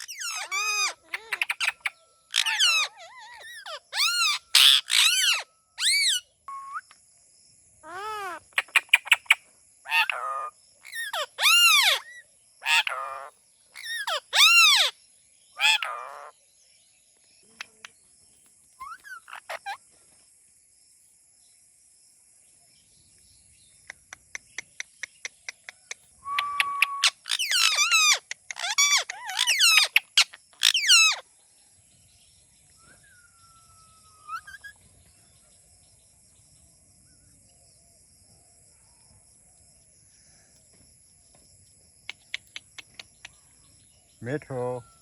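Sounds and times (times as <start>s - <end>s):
parrot calling: 0.0s - 6.9s, 7.8s - 15.0s, 15.6s - 16.3s, 18.8s - 19.8s, 26.2s - 31.2s, 33.4s - 34.8s.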